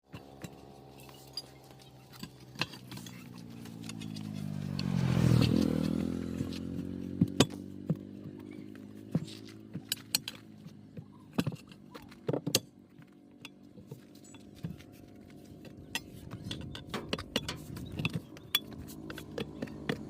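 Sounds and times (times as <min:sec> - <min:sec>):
engine running: 0:00.1 - 0:20.0
sharp metallic clinks: 0:00.2 - 0:05.6.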